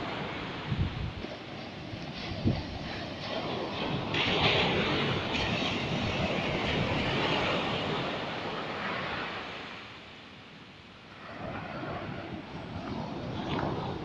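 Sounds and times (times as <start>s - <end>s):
sea surf breaking: 0.0s - 10.1s, 11.1s - 14.0s.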